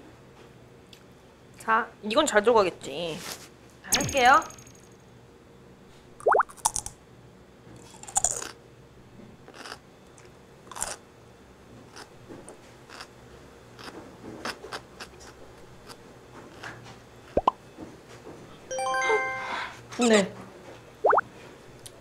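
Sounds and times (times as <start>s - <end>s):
crunching and chewing of food: 6.4s - 7.0s, 7.7s - 8.6s, 9.4s - 11.1s, 11.8s - 17.4s.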